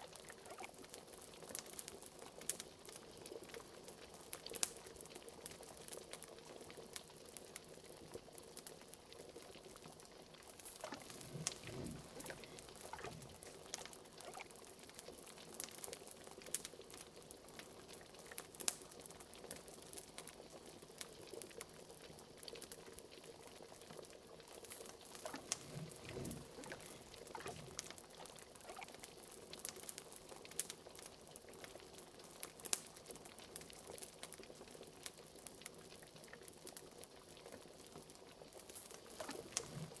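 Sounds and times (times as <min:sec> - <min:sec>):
liquid boiling and bubbling: 0:00.0 - 0:40.0
fire crackling and popping: 0:10.4 - 0:20.0, 0:24.6 - 0:30.9, 0:38.7 - 0:40.0
deep gurgles: 0:10.8 - 0:14.4, 0:25.2 - 0:28.8, 0:39.2 - 0:40.0.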